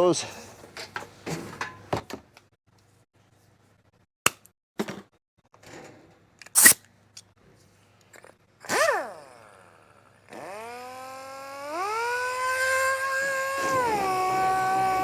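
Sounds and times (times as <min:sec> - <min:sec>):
electric motor whining: 0:08.7 - 0:15.0.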